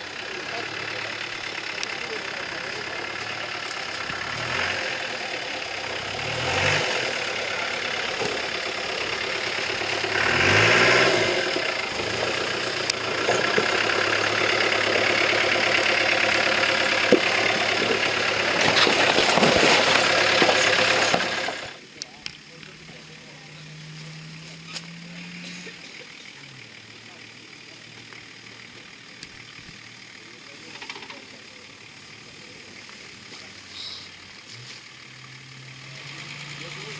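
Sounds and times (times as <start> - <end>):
off-road vehicle engine revving: 0.0 - 36.9.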